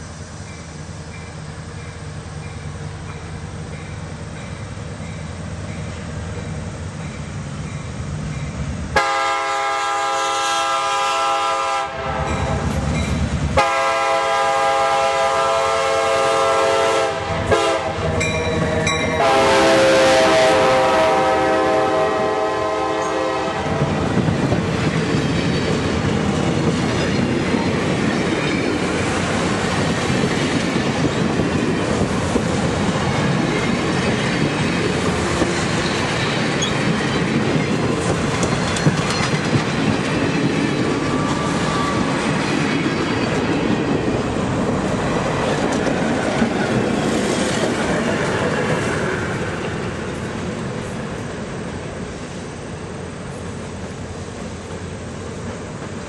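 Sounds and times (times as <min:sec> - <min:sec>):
locomotive air horn blasts: 0:09.0 - 0:12.8, 0:13.6 - 0:18.3, 0:18.9 - 0:24.2
train wheels clicking over rail joints: 0:12.2 - 0:13.6, 0:23.8 - 0:56.0.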